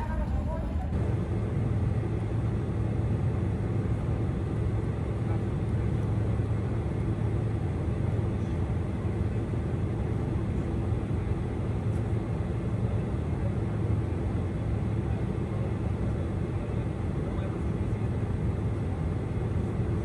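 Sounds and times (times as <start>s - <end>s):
airliner cabin engine drone: 0.0s - 20.0s.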